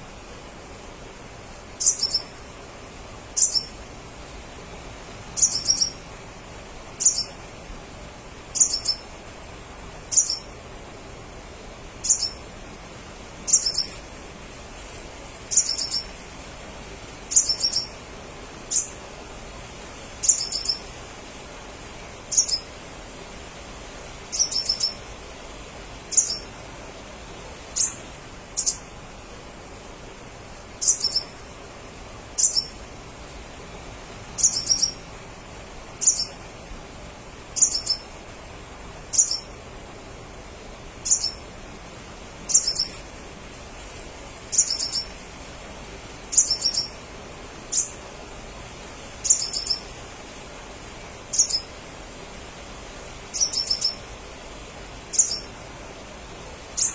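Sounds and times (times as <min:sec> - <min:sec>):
sunbird high chirps: 0:01.8 - 0:02.4, 0:03.4 - 0:03.8, 0:05.3 - 0:06.1, 0:07.0 - 0:07.4, 0:08.5 - 0:09.1, 0:10.1 - 0:10.6, 0:12.0 - 0:12.4, 0:13.4 - 0:14.1, 0:15.4 - 0:16.2, 0:17.3 - 0:18.0, 0:18.7 - 0:19.0, 0:20.2 - 0:20.9, 0:22.3 - 0:22.7, 0:24.3 - 0:25.1, 0:26.1 - 0:26.5, 0:27.8 - 0:28.9, 0:30.8 - 0:31.6, 0:32.4 - 0:32.8, 0:34.4 - 0:35.1, 0:36.0 - 0:36.4, 0:37.6 - 0:38.1, 0:39.1 - 0:39.5, 0:41.0 - 0:41.4, 0:42.5 - 0:43.0, 0:44.5 - 0:45.2, 0:46.3 - 0:47.0, 0:47.7 - 0:48.0, 0:49.2 - 0:50.0, 0:51.3 - 0:51.7, 0:53.3 - 0:54.1, 0:55.1 - 0:55.5.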